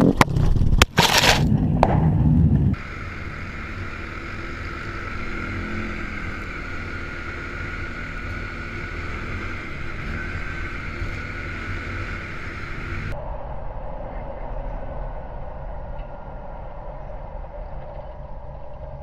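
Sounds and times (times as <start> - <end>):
engine running steadily: 0.0 - 13.2.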